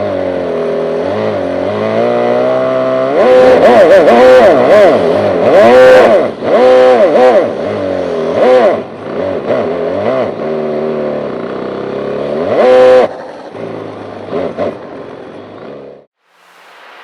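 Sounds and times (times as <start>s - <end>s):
simulated engine revving: 0.0s - 14.8s.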